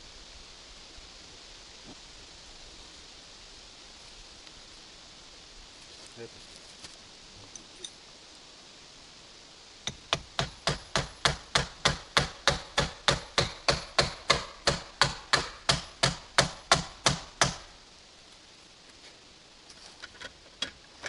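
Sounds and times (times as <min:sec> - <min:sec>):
hammer striking wood: 0:09.9 - 0:17.7.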